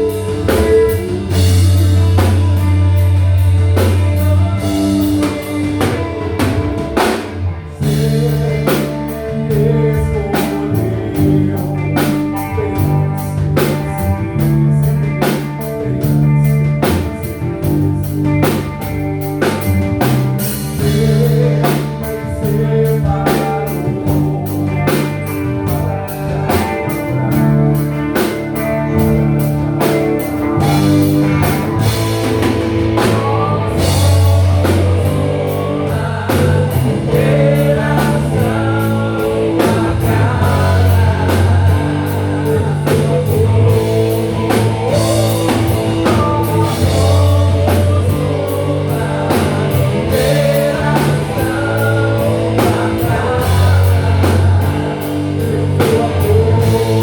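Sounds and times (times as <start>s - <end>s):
drum kit beat: 0.0s - 57.0s
live rock band: 0.0s - 57.0s
person singing: 0.0s - 57.0s.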